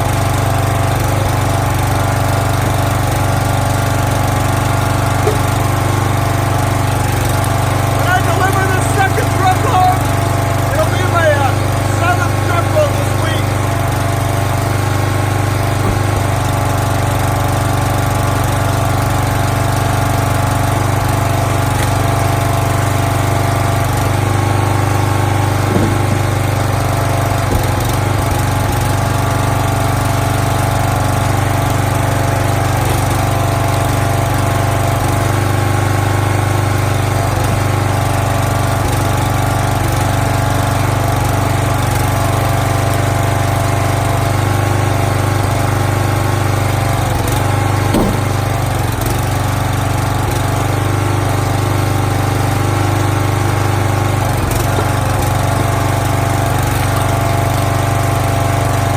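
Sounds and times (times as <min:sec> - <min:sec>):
small gas engine running: 0:00.0 - 0:46.2, 0:47.1 - 0:49.2
light knocks: 0:15.8 - 0:16.6, 0:48.0 - 0:48.7.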